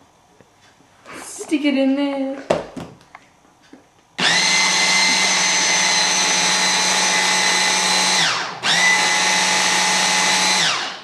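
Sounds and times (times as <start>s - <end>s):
food processor motor running: 4.2s - 11.0s.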